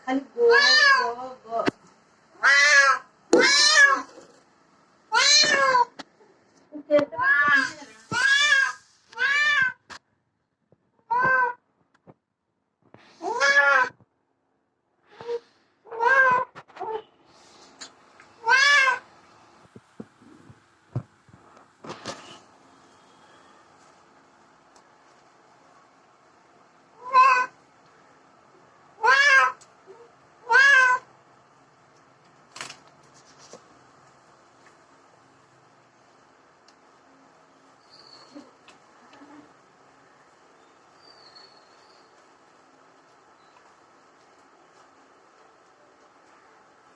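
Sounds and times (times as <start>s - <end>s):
cat meowing: 0.5s - 1.1s, 2.4s - 4.2s, 5.1s - 5.9s, 7.2s - 9.8s, 11.1s - 11.6s, 13.2s - 14.0s, 15.9s - 17.0s, 18.4s - 19.0s, 27.0s - 27.5s, 29.0s - 29.6s, 30.4s - 31.1s.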